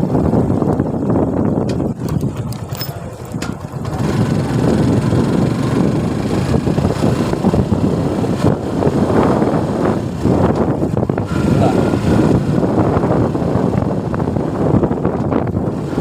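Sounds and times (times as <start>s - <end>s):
motorcycle engine running: 0.0s - 16.0s
wind noise on microphone: 0.0s - 16.0s.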